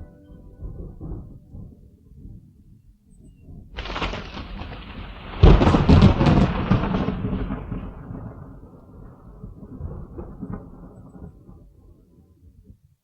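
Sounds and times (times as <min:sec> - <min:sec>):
loud thunderclap and rumble: 0:03.8 - 0:12.1.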